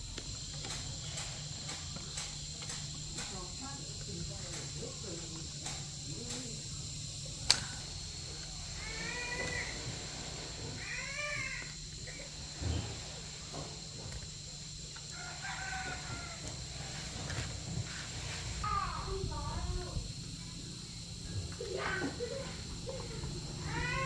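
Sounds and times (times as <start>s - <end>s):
rooster crowing: 15.1s - 17.5s.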